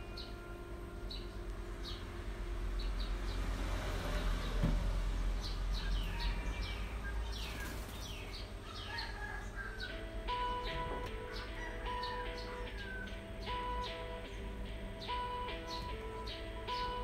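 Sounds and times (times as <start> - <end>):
small birds chirping: 0.0 - 3.6, 4.4 - 17.0.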